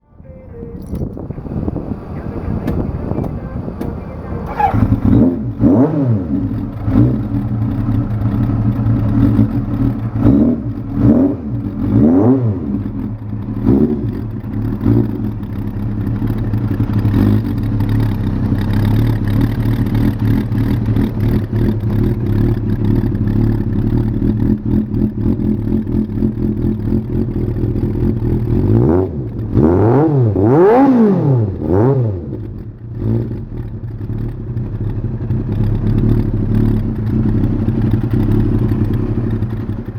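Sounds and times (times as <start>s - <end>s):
motorcycle engine revving and idling: 0.0s - 39.9s.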